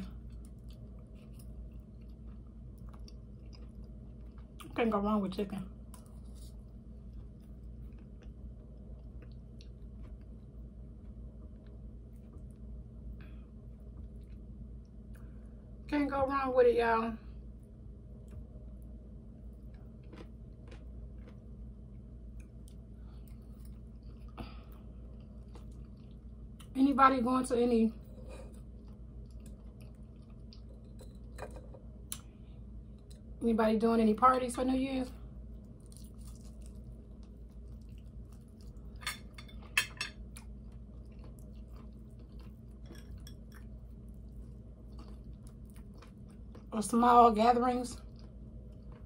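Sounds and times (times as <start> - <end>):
person chewing: 0.0 - 4.8, 6.0 - 15.4, 19.4 - 26.7, 28.1 - 31.4, 35.4 - 46.7, 48.1 - 49.0
low steady hum: 0.0 - 49.0.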